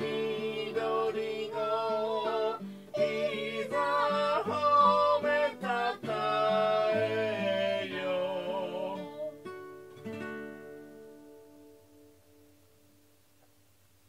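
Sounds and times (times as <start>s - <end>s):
person singing: 0.0s - 9.5s
strummed acoustic guitar: 0.0s - 13.0s.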